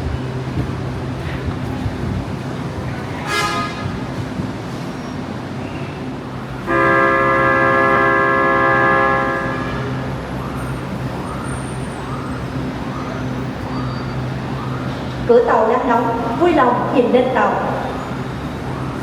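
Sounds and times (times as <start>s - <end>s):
train horn: 3.2s - 4.1s, 6.6s - 10.2s.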